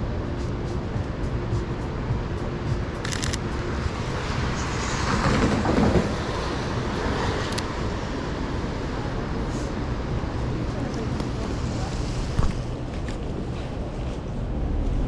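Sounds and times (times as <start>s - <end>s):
traffic on wet road: 0.1s - 15.0s
vehicle passing close: 3.2s - 15.0s.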